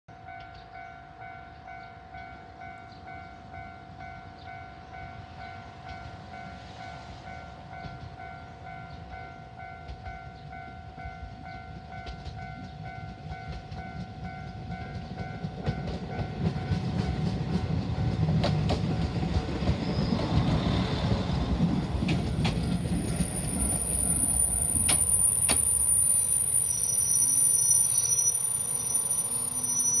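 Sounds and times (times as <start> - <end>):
level-crossing warning bell: 0.1 - 20.1, 21.3 - 30.0
railcar engine and wheels: 0.1 - 30.0
wheels clicking on track: 11.2 - 30.0
high brake squeal: 23.0 - 30.0.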